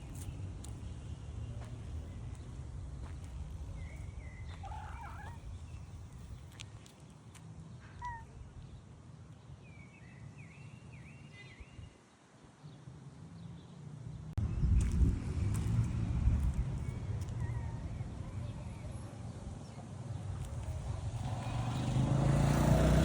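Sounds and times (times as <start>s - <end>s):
high animal calls and chirps: 4.4s - 5.8s, 7.8s - 8.4s
low outdoor rumble: 14.2s - 22.7s.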